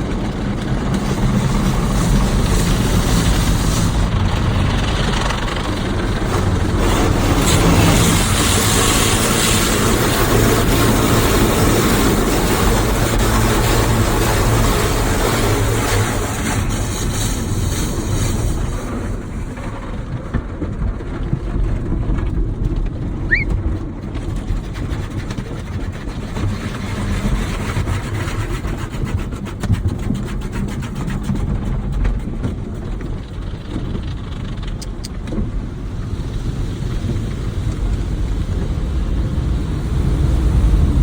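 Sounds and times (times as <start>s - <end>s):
car wash machinery rumble: 0.0s - 29.9s, 31.4s - 41.0s
brief rising squeak: 23.3s - 23.6s
fast run of ticks: 32.9s - 35.4s.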